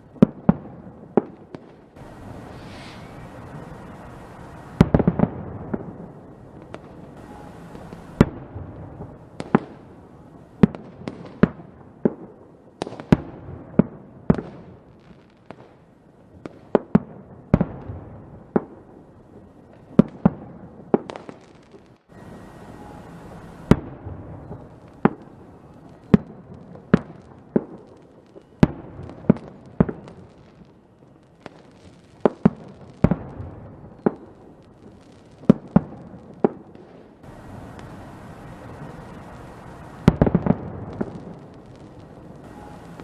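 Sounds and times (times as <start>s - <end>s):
fireworks bangs: 0.0s - 15.8s, 16.4s - 43.0s
low rumble of bursts: 2.0s - 6.5s, 37.2s - 43.0s.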